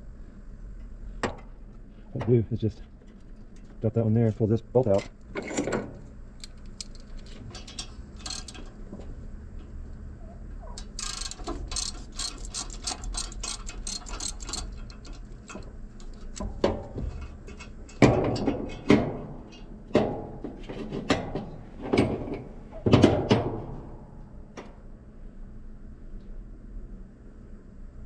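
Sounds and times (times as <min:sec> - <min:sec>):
metal clanks: 0:04.9 - 0:08.8, 0:10.6 - 0:20.2
socket ratchet clicking: 0:10.8 - 0:16.4.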